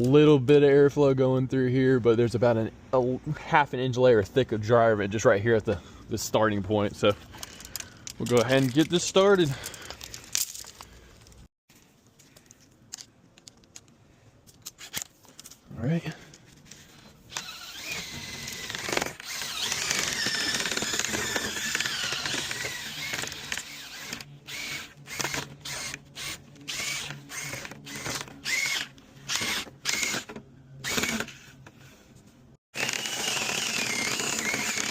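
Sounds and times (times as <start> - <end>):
power drill spinning brush in duct: 16.8 - 31.9, 32.8 - 34.9.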